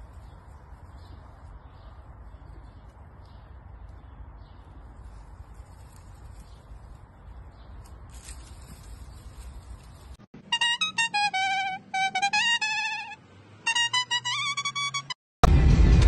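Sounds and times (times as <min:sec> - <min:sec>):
tree branches rustling: 0:00.0 - 0:10.3.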